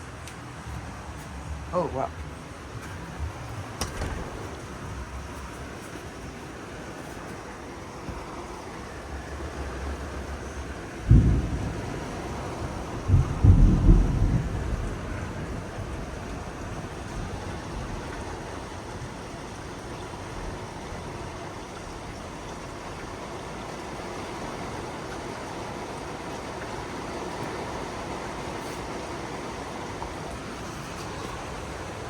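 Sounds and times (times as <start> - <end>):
gusting wind: 0.0 - 32.0
rain downpour: 0.0 - 32.0.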